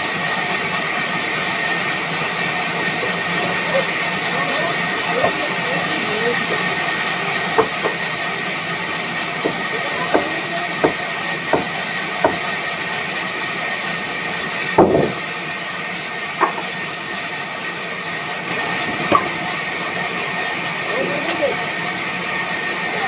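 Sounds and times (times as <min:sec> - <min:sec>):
machine running with faint whine: 0:00.0 - 0:23.0
sharp knocks: 0:09.4 - 0:12.4, 0:14.8 - 0:15.2, 0:16.4 - 0:16.7, 0:19.1 - 0:19.4.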